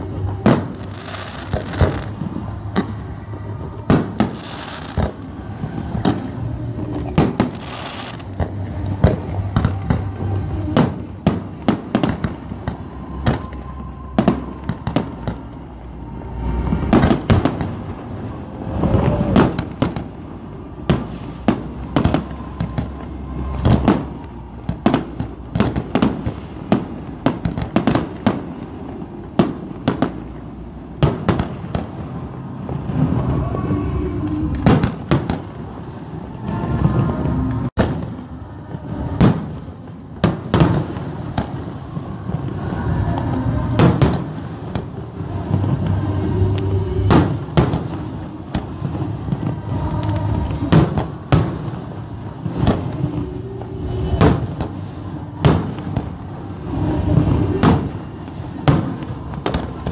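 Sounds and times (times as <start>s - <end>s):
heavy firework booms: 54.2s - 56.3s.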